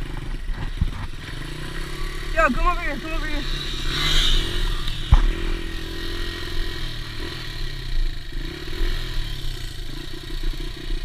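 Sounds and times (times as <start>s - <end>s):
dirt bike engine running: 0.0s - 11.0s
sharp thump: 4.9s - 5.6s.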